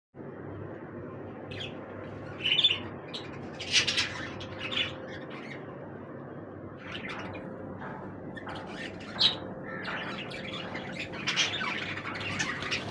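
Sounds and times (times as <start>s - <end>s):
budgerigars squawking and chirping: 1.5s - 5.7s, 6.8s - 12.9s.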